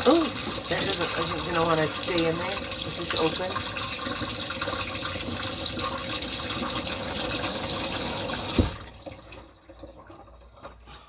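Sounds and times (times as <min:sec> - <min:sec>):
water running from a tap: 0:00.0 - 0:11.0
knock: 0:08.6 - 0:08.8.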